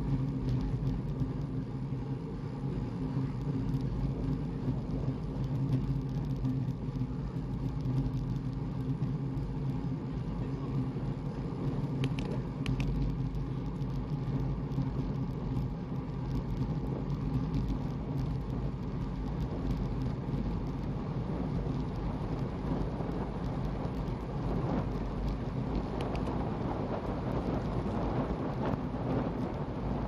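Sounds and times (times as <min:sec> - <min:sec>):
road and wind rumble: 0:00.0 - 0:30.0
faint ticks: 0:11.3 - 0:26.5.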